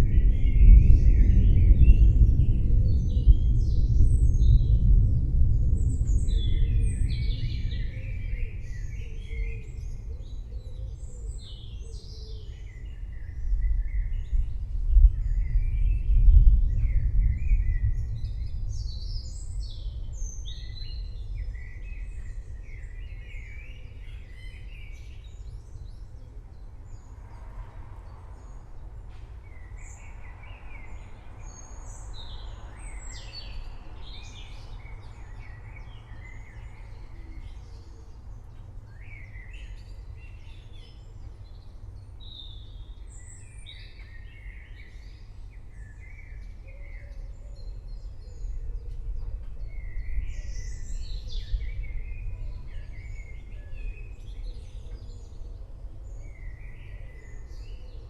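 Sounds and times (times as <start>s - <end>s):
distant thunder rumbling: 0.0s - 8.9s, 13.4s - 22.2s
songbirds chirping: 0.0s - 58.0s.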